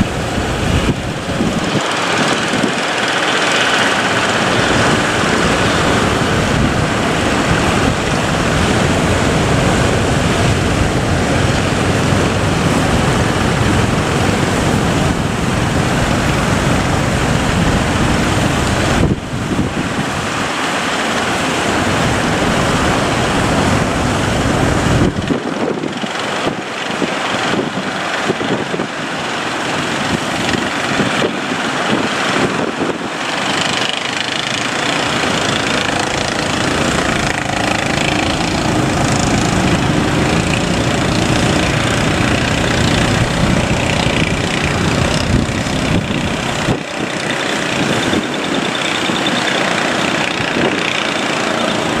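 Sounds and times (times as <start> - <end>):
boat engine running: 0.0 - 52.0
surf washing: 0.0 - 52.0
wind: 0.0 - 52.0.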